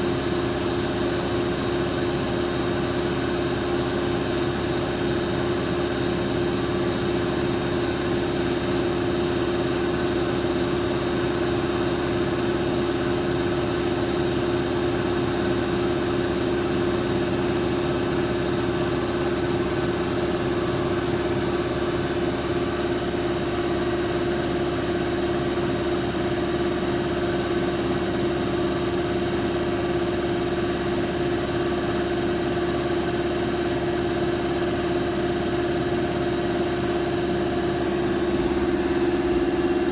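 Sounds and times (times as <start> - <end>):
machine lathe humming and whining: 36.6 - 39.9.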